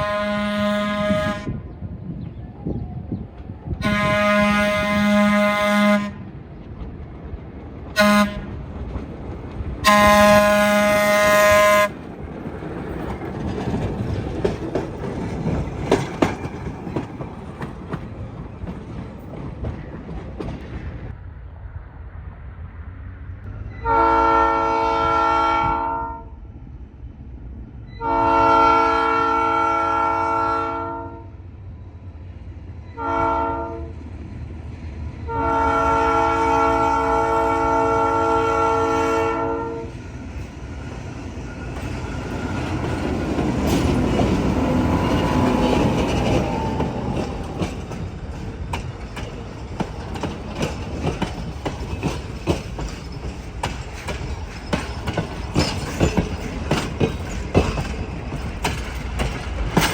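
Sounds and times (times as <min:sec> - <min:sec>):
locomotive air horn blasts: 0:00.0 - 0:01.6, 0:03.8 - 0:06.2, 0:08.0 - 0:08.5, 0:09.8 - 0:12.0, 0:23.7 - 0:26.3, 0:28.0 - 0:31.4, 0:33.0 - 0:33.9, 0:35.3 - 0:40.0
train wheels clattering on rails: 0:03.1 - 0:21.2, 0:39.9 - 0:59.9.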